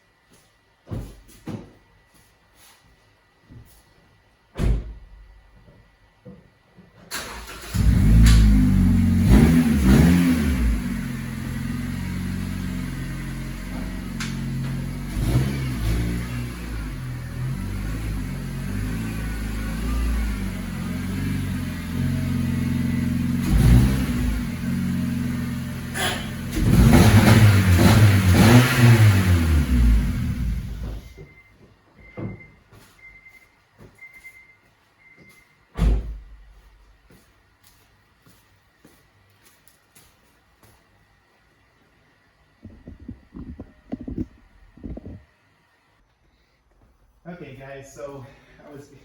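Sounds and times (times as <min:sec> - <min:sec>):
car engine starting and revving: 0:07.1 - 0:31.2.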